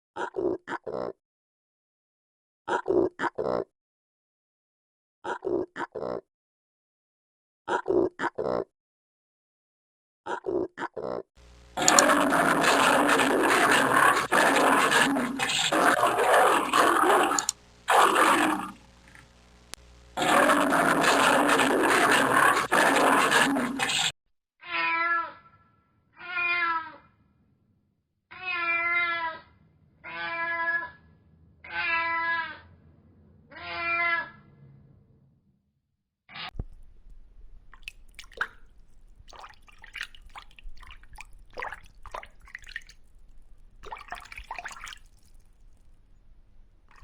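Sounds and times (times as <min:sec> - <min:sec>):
animal calling: 0:11.8 - 0:18.8, 0:20.2 - 0:24.1.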